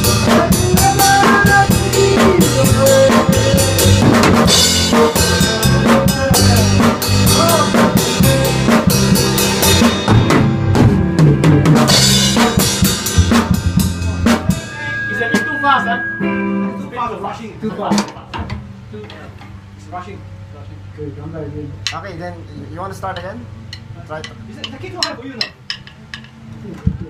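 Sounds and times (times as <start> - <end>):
band playing live: 0.0 - 18.9
drum kit: 0.0 - 19.2.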